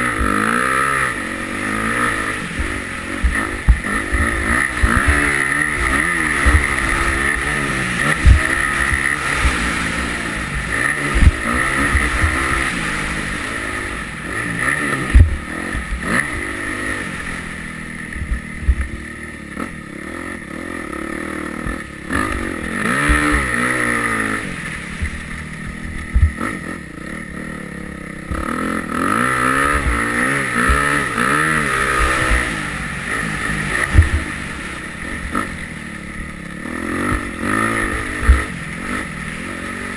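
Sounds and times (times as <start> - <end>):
motocross engine revving: 0.0 - 39.9
thumps: 2.6 - 9.7, 15.1 - 16.0.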